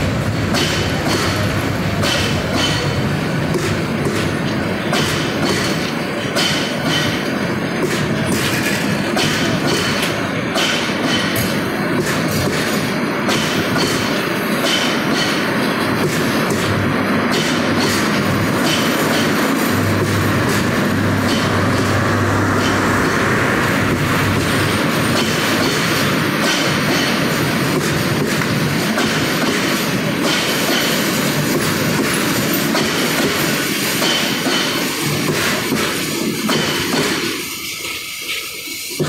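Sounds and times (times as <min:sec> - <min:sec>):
train wheels rumbling and clattering: 0:00.0 - 0:39.0
low steady hum: 0:19.7 - 0:24.8.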